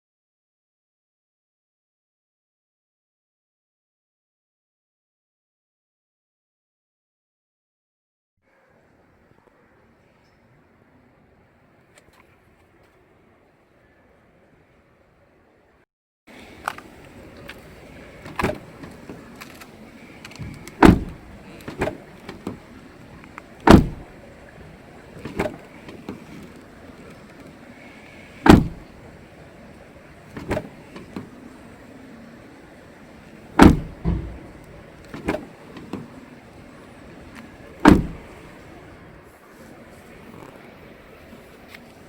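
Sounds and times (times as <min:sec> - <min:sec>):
car door slamming: 0:17.4 - 0:19.4, 0:20.0 - 0:22.8, 0:23.6 - 0:24.2, 0:25.1 - 0:26.5, 0:28.4 - 0:29.0, 0:30.3 - 0:31.4, 0:33.6 - 0:36.2, 0:37.8 - 0:38.5
car door latch clicks: 0:17.4 - 0:22.6, 0:23.2 - 0:24.1, 0:25.1 - 0:27.2, 0:28.4 - 0:29.0, 0:30.3 - 0:31.4, 0:33.6 - 0:36.1, 0:37.8 - 0:38.4.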